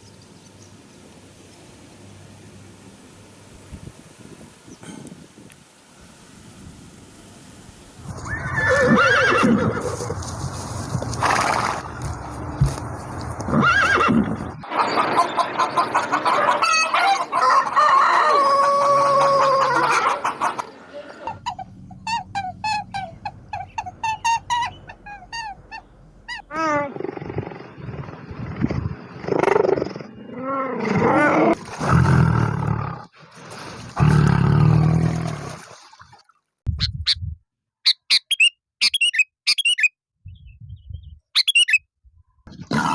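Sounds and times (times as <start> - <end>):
animal calls: 18.8 - 31.3, 37.8 - 39.9, 41.4 - 41.8
rapid repeated chirps: 36.7 - 39.9, 41.4 - 41.8.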